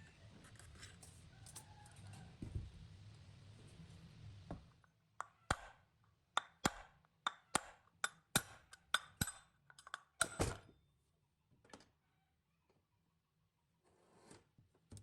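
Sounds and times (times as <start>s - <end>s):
metal parts tapping and clinking: 8.0s - 10.6s.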